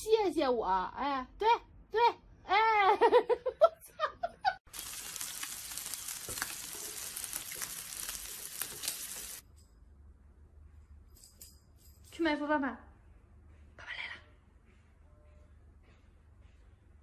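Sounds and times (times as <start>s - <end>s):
food sizzling and crackling: 4.7s - 9.4s.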